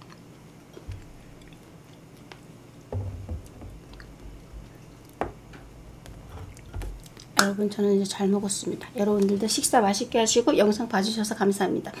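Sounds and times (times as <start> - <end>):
person chewing and swallowing: 0.0 - 2.4, 3.0 - 7.4
bowl knocking on wooden board: 2.9 - 7.1.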